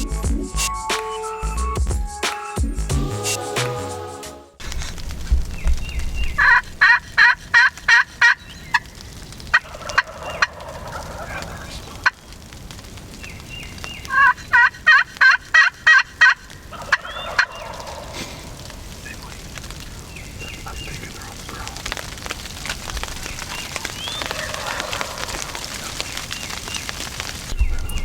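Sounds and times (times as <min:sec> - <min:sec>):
turkeys gobbling: 0:05.8 - 0:28.0.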